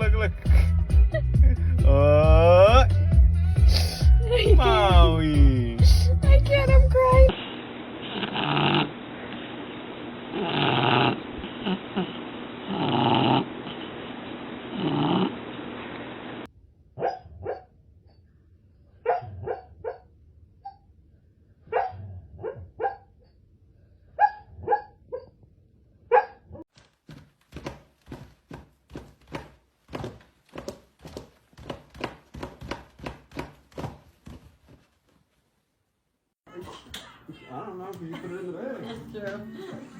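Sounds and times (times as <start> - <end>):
dog snoring: 8.1 - 9.0, 10.3 - 13.8, 14.7 - 15.4
sleeping dog woofing and yipping: 17.0 - 18.2, 19.0 - 20.0, 21.7 - 23.2, 24.2 - 25.4.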